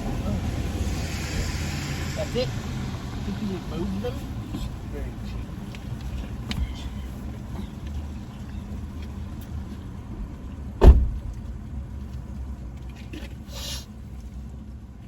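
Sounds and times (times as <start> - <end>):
car engine rumble: 0.0 - 15.0
heavy thump: 10.8 - 11.4.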